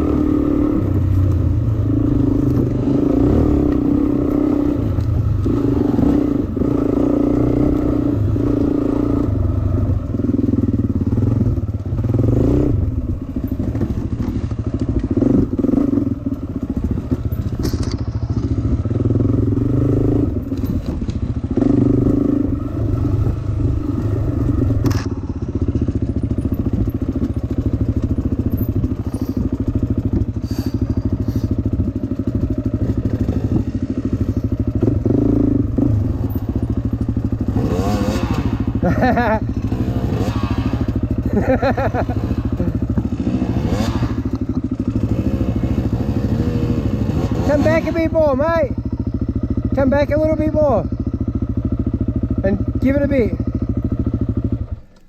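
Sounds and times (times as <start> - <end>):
dirt bike engine revving: 0.0 - 55.0
bike knocks and rattles: 16.6 - 19.1, 24.6 - 31.2.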